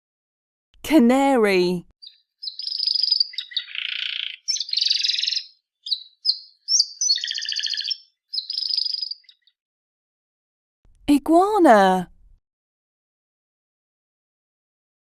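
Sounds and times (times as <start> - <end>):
canary singing trills: 2.0 - 9.6.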